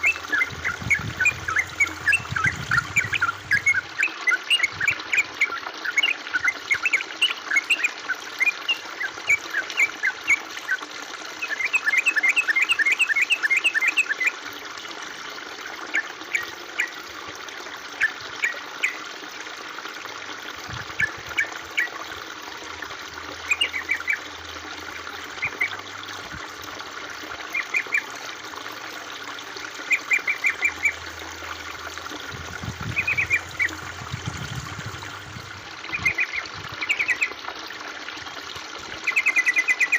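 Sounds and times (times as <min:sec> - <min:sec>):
water trickling: 0:00.0 - 0:39.9
small birds chirping: 0:32.7 - 0:35.2.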